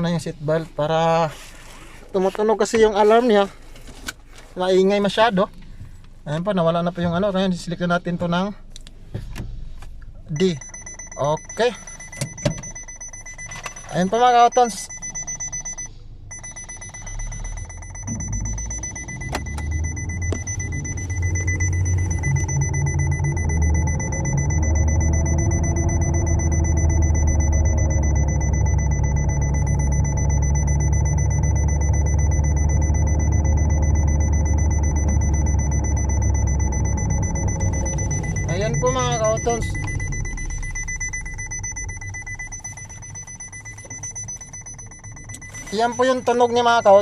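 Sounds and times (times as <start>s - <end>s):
low transmission hum: 0.0s - 47.0s
high-pitched electronic tone: 14.1s - 47.0s
car drivetrain running: 16.3s - 47.0s.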